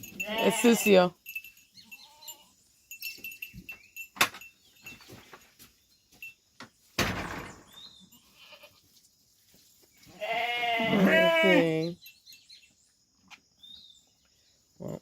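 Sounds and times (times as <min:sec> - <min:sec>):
sheep and goats: 0:00.0 - 0:07.0, 0:07.6 - 0:15.0
knocks and scuffling: 0:03.1 - 0:08.0.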